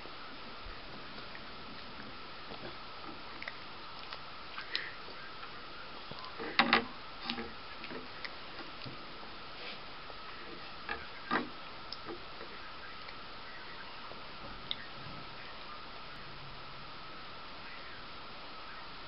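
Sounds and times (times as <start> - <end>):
toddler chewing with wet smacks: 1.1 - 6.6.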